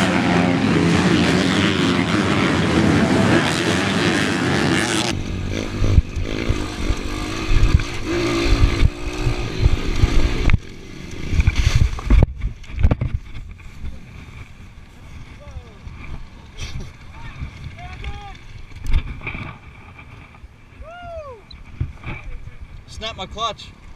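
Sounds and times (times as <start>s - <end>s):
dirt bike engine revving high: 0.0s - 11.9s
wind gusts on microphone: 2.7s - 23.4s.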